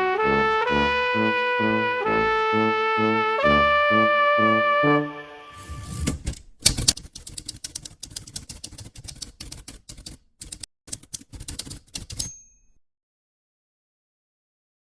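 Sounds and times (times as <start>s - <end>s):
typewriter keys clacking: 6.0s - 12.8s
typewriter bell ding: 12.0s - 12.8s.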